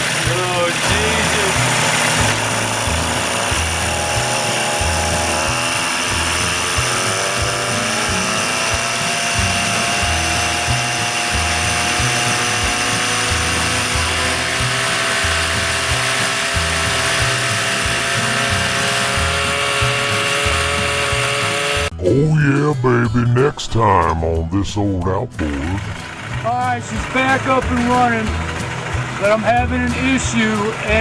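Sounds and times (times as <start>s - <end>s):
outboard motor running: 0.0s - 22.0s, 25.4s - 31.0s
music playing: 0.0s - 31.0s.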